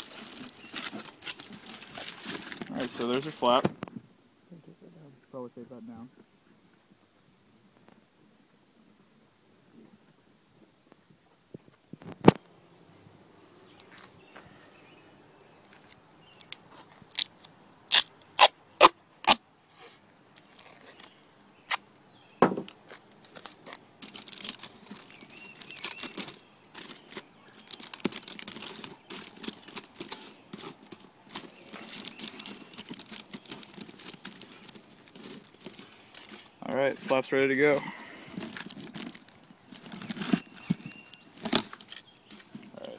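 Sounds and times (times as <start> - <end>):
foil crinkling and tearing: 0.0 - 3.6, 22.8 - 42.8.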